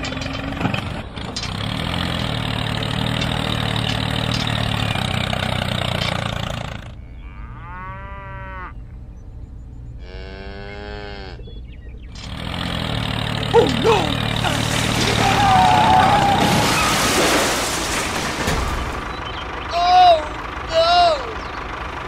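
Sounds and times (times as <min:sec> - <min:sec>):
tractor engine running: 0:00.0 - 0:07.2, 0:11.6 - 0:22.0
cow mooing: 0:07.0 - 0:08.8, 0:10.0 - 0:11.5.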